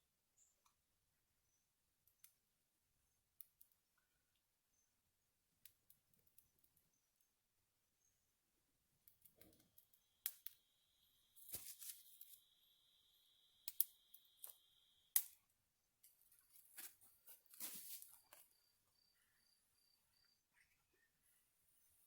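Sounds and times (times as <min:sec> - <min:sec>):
campfire twigs crackling: 0:09.0 - 0:18.5
thin steady high tone: 0:10.5 - 0:15.2.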